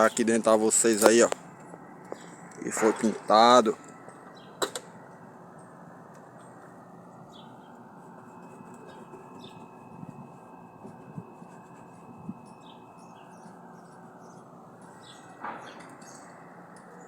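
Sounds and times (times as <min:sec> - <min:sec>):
small birds chirping: 0:02.0 - 0:02.6, 0:03.9 - 0:04.6, 0:06.4 - 0:08.0, 0:08.7 - 0:09.9, 0:12.3 - 0:17.0.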